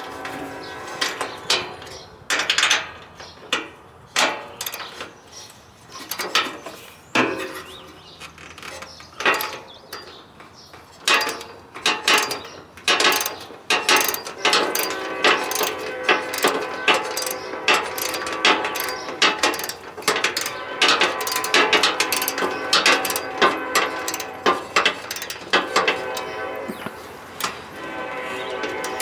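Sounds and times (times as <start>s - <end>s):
hand tools clicking on metal: 4.2s - 5.1s, 6.0s - 6.6s, 8.3s - 29.0s.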